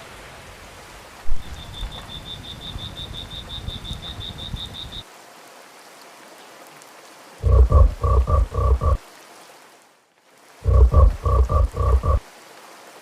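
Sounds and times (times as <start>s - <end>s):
low rumble: 7.4s - 9.0s, 10.6s - 12.2s.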